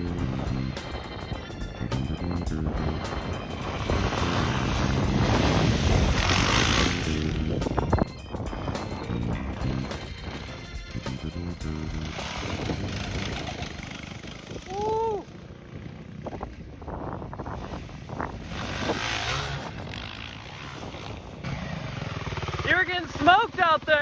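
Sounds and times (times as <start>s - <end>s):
minibike engines riding past: 0.0s - 24.0s.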